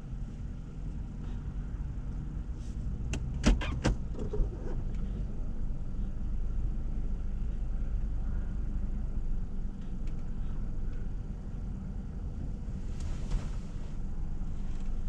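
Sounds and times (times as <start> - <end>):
car engine rumbling: 0.0 - 15.0
brief hiss: 12.9 - 13.9.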